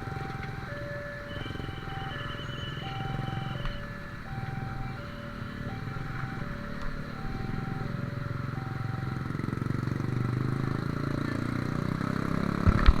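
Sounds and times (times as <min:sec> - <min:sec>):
level crossing alarm two tones: 0:00.0 - 0:09.4
low rumble of engines: 0:00.0 - 0:13.0.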